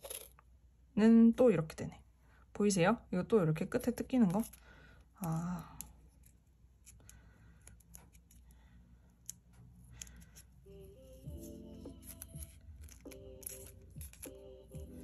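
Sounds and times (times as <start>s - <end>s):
faint music: 7.6s - 15.0s
small clicks and snips: 9.2s - 10.2s
tape and paper handling: 11.4s - 14.8s.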